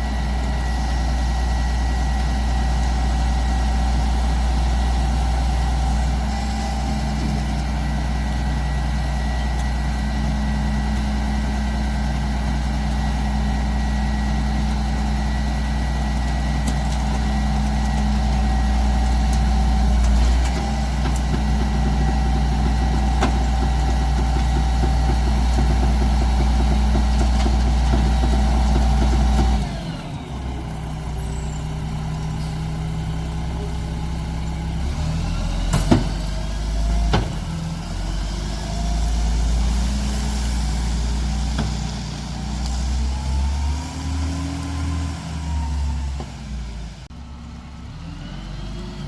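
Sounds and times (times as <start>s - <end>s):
garbage truck diesel engine: 0.0s - 49.0s.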